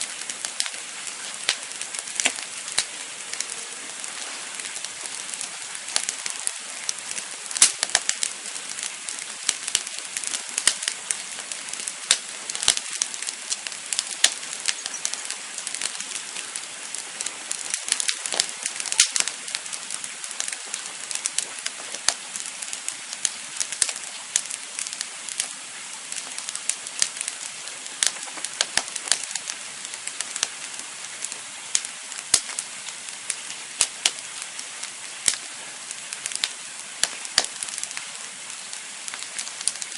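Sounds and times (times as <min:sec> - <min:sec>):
campfire hiss: 0:00.0 - 0:39.9
fire crackles and pops: 0:00.0 - 0:39.9.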